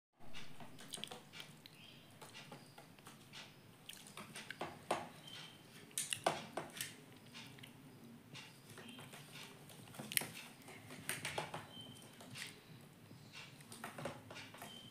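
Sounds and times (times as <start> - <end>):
parrot pecking clicks and taps: 8.8 - 12.4.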